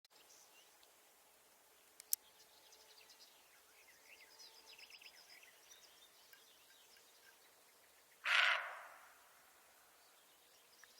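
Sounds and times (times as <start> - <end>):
small birds chirping: 1.7 - 9.1, 9.8 - 10.9.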